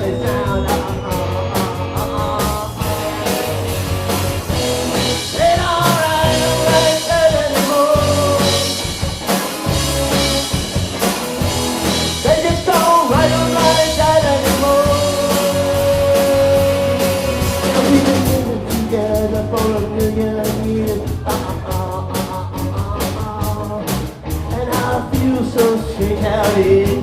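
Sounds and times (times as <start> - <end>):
person singing: 0.0 - 3.3, 5.2 - 8.8, 12.2 - 27.0
rock band playing: 0.0 - 27.0.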